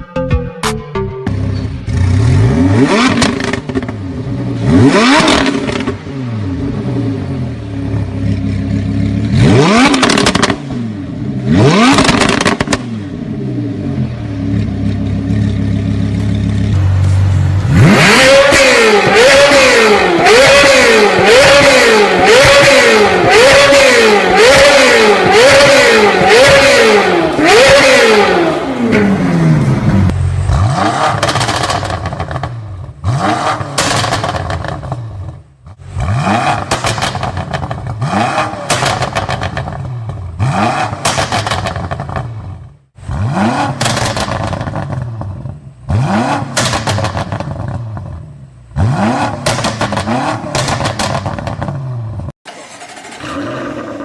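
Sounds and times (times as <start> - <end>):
engine revving with loud exhaust: 1.3 - 54.0
exhaust pops and crackles: 11.9 - 12.9, 31.2 - 32.6, 33.7 - 35.4, 36.5 - 42.4, 43.8 - 45.6, 46.5 - 48.1, 49.3 - 51.8.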